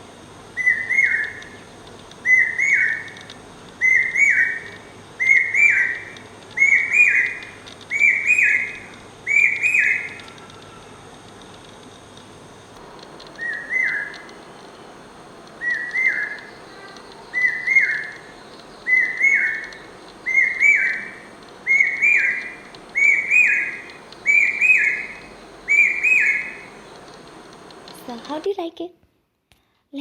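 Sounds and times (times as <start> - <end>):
cuckoo whistled phrases: 0.6 - 1.6, 2.2 - 3.1, 3.8 - 10.8, 13.3 - 14.3, 15.6 - 26.9.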